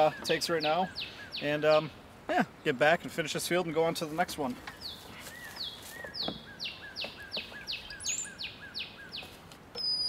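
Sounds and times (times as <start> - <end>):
songbird whistling: 4.7 - 10.0.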